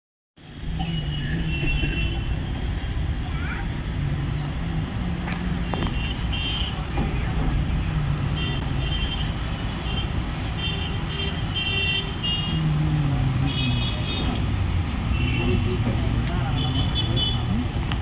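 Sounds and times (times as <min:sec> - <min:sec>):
train rumbling over bridge: 0:06.8 - 0:08.3.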